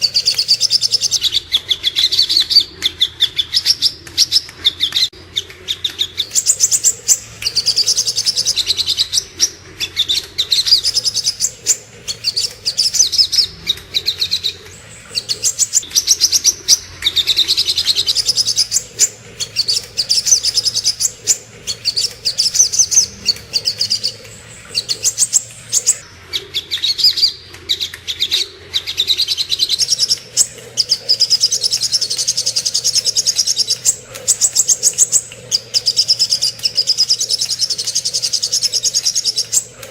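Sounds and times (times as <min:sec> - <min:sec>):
bird singing high sharp chirps: 0:00.0 - 0:01.4, 0:06.1 - 0:16.8, 0:17.8 - 0:26.0.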